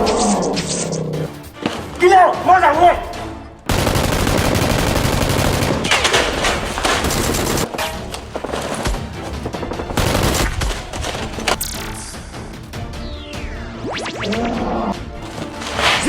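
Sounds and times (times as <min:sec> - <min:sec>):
background music: 0:00.0 - 0:16.0
automatic gunfire: 0:03.7 - 0:07.7, 0:09.9 - 0:10.9.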